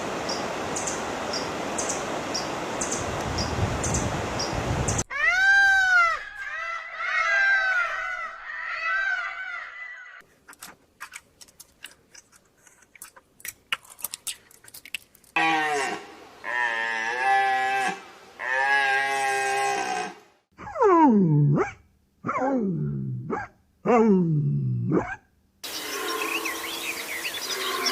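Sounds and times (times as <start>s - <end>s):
animal rising and falling cries: 5.1s - 10.2s, 15.4s - 22.5s.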